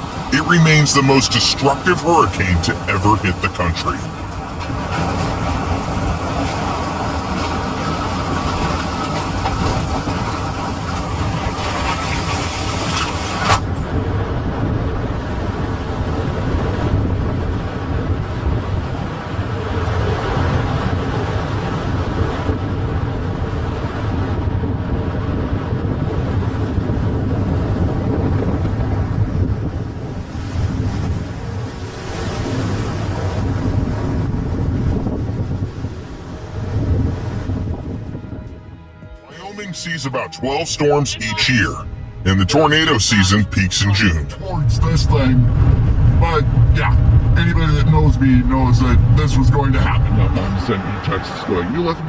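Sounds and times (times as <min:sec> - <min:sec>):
strong wind buffeting microphone: 0:00.0 - 0:40.0, 0:40.6 - 0:52.0
deep low boom: 0:44.2 - 0:50.8.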